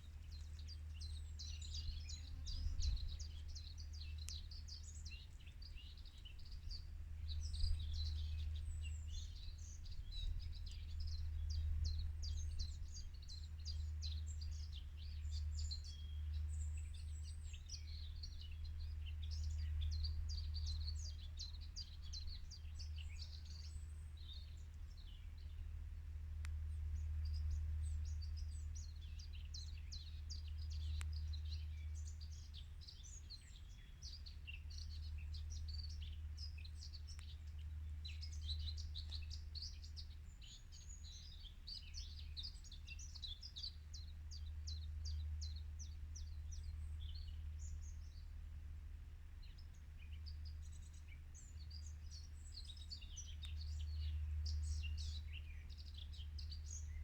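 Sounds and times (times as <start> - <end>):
steady low rumble: 0.0 - 42.7
birds chirping and singing: 49.4 - 57.0.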